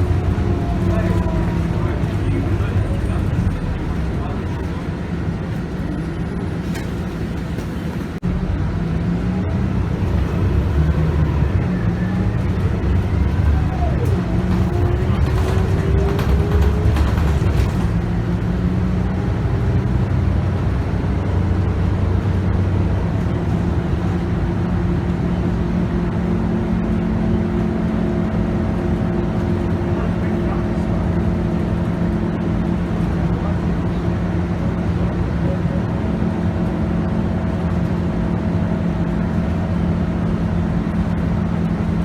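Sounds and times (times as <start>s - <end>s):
bus engine driving: 0.0s - 42.0s.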